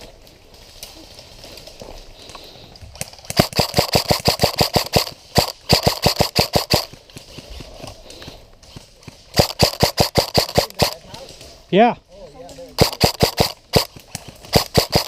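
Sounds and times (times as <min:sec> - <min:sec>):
airsoft rifle firing bursts: 0:03.2 - 0:07.9, 0:08.7 - 0:11.2, 0:12.7 - 0:15.0.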